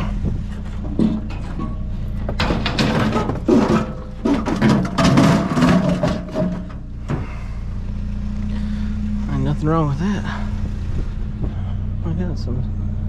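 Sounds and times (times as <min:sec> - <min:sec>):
objects clattering and rustling: 0:00.0 - 0:07.5
vehicle engine idling: 0:00.0 - 0:13.0.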